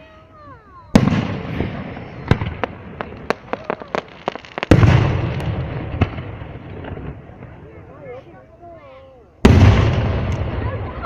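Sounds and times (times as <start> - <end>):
fireworks cracking and popping: 0.1 - 8.4, 9.4 - 11.0
fireworks boom: 0.9 - 7.8, 9.4 - 11.0.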